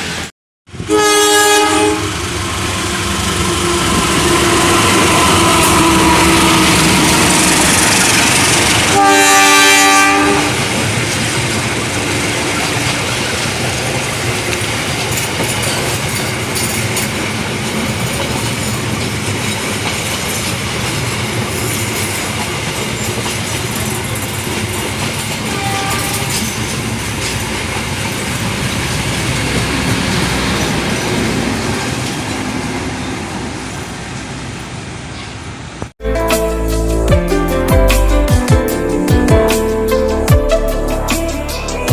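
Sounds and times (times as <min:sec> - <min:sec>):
train wheels clattering over rails: 0:10.5 - 0:32.4.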